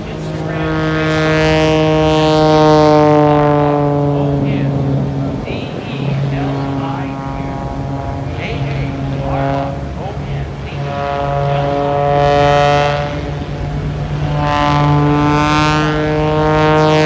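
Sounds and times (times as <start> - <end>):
propeller plane engine droning: 0.0 - 17.0.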